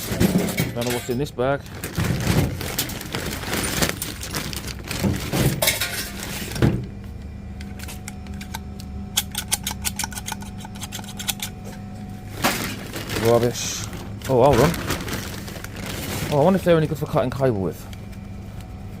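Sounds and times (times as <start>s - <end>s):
hands rummaging through a bag: 1.7s - 6.6s, 12.4s - 16.6s.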